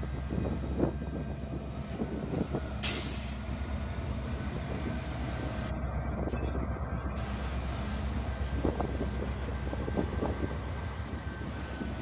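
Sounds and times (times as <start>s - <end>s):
diesel locomotive rumble: 0.0s - 12.0s
train wheel squeaks: 3.4s - 12.0s.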